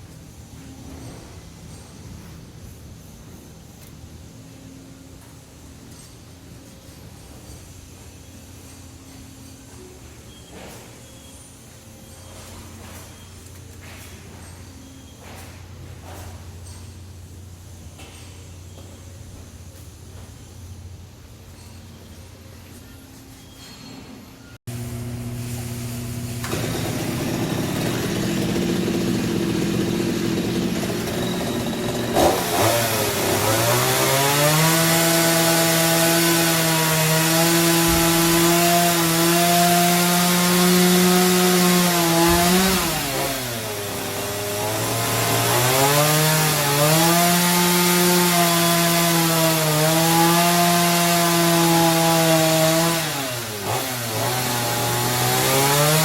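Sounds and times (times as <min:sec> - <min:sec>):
chainsaw cutting timber: 0:26.2 - 0:56.0.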